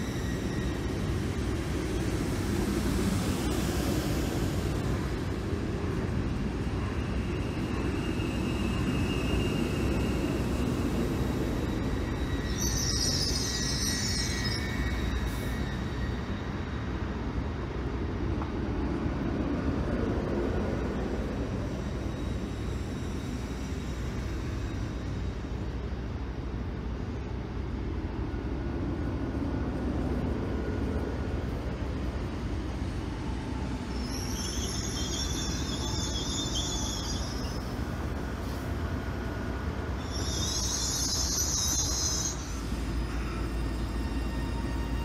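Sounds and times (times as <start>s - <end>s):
high squeal: 0.0s - 4.6s, 6.7s - 17.4s, 21.3s - 25.6s, 32.8s - 45.0s.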